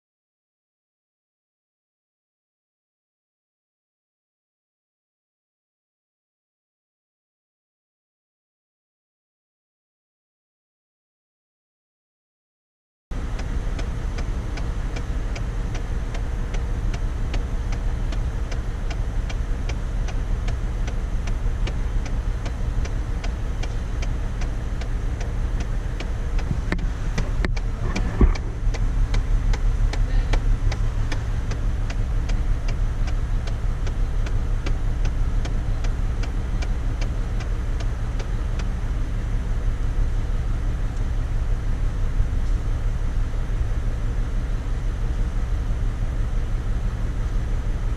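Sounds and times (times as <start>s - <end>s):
car engine idling: 13.1s - 47.9s
regular engine ticking: 13.1s - 47.9s.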